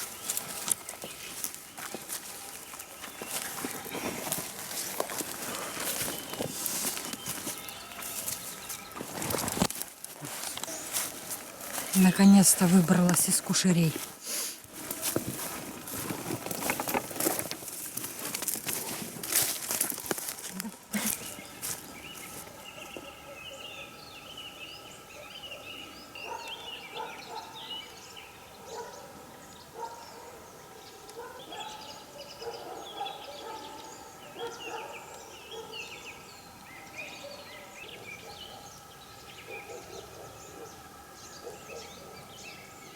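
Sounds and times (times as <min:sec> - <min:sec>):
many birds calling: 0:00.0 - 0:42.9.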